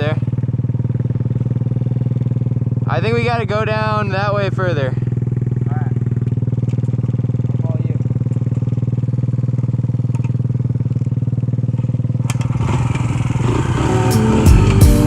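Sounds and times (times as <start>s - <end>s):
motorbike engine idling: 0.0s - 15.0s
music: 14.1s - 15.0s.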